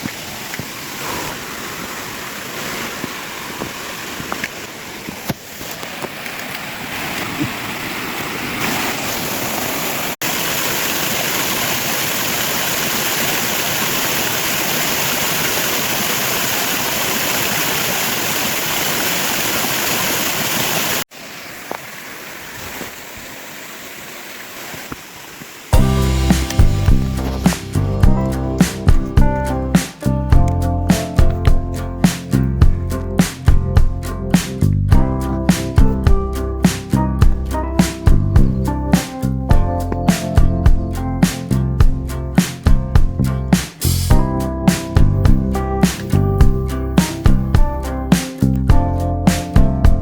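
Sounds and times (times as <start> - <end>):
stream rushing over waterfalls: 0.0 - 32.3.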